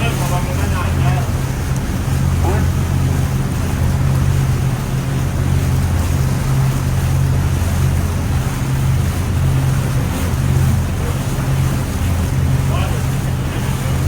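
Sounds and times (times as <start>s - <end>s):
sea: 0.0s - 14.0s
ship engine hum: 0.0s - 14.0s
wind: 0.0s - 14.0s.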